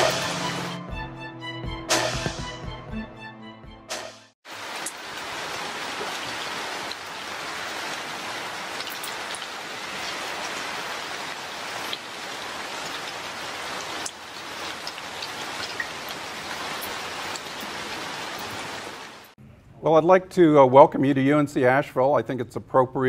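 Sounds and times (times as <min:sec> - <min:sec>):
steady rain hiss: 0:04.5 - 0:19.4
rain drop ticks: 0:04.6 - 0:05.2, 0:08.7 - 0:10.6, 0:11.2 - 0:13.1, 0:13.7 - 0:18.7.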